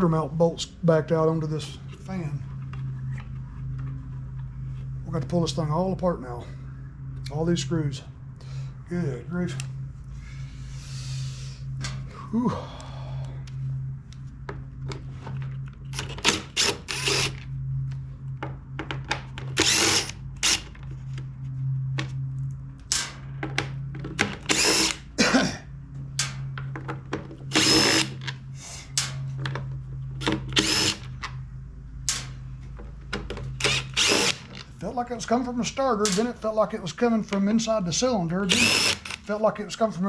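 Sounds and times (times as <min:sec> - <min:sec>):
cordless drill running: 0:16.0 - 0:17.4, 0:19.6 - 0:20.6, 0:24.5 - 0:25.0, 0:27.5 - 0:28.2, 0:30.5 - 0:31.1, 0:33.6 - 0:34.5, 0:38.5 - 0:39.3
parts clicking and clattering: 0:36.0 - 0:36.4.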